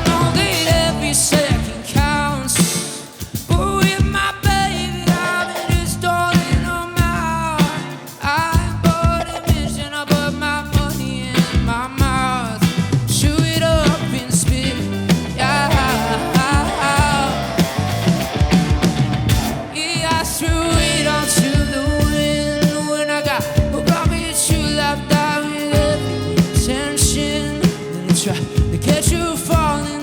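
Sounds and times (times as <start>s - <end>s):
live rock band playing: 0.0s - 30.0s
person singing: 0.0s - 30.0s.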